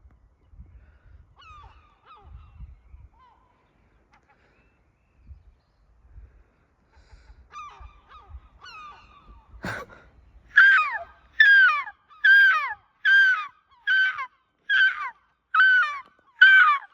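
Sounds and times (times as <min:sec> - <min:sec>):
gulls calling: 0:07.5 - 0:16.9.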